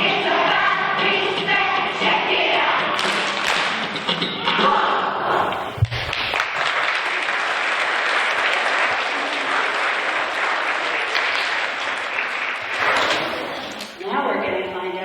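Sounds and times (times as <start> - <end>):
children applauding: 5.9 - 14.0.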